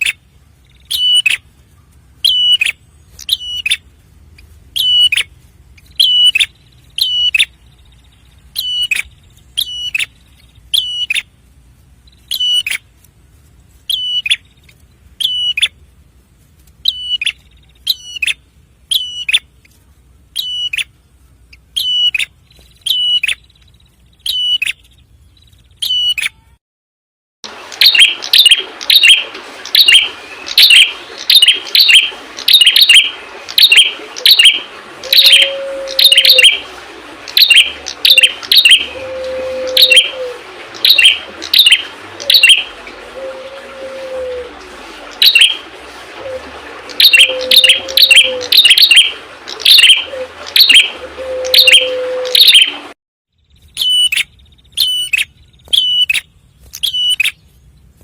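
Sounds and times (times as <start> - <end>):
bird sharp chirps: 53.4 - 57.4.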